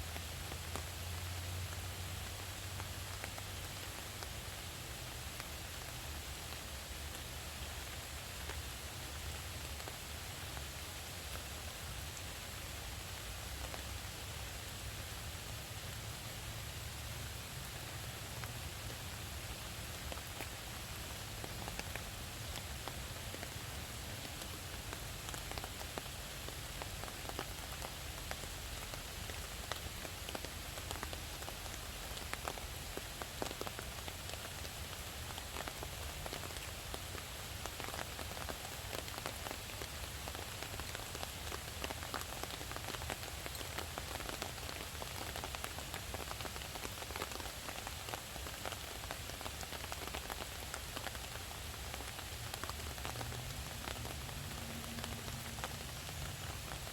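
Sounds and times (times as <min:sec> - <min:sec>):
steady rain hiss: 0:00.0 - 0:56.9
raindrops ticking: 0:18.2 - 0:56.9.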